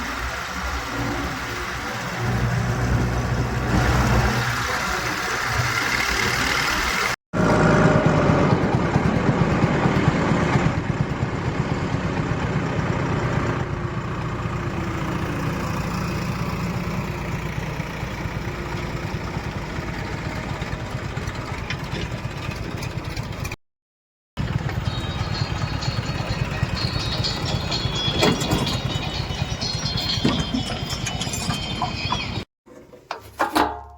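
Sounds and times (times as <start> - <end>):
diesel engine running: 0.0 - 23.6, 24.4 - 32.5.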